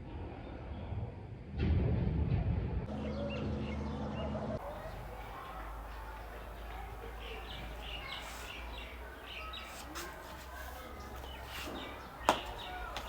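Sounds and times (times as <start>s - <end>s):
small birds chirping: 4.6s - 13.0s.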